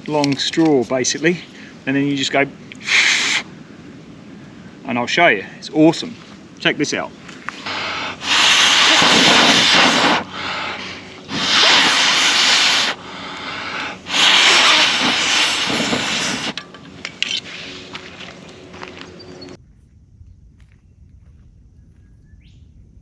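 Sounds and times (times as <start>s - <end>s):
breath blown through a blowpipe: 2.7s - 3.6s, 7.7s - 16.6s.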